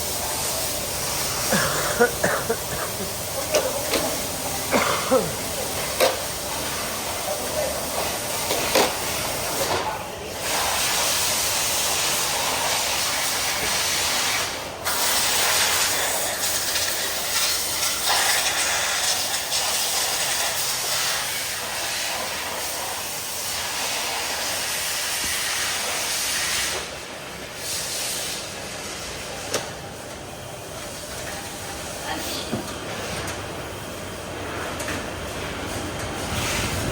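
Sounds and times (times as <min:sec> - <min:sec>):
rushing air hiss: 0:10.4 - 0:27.0.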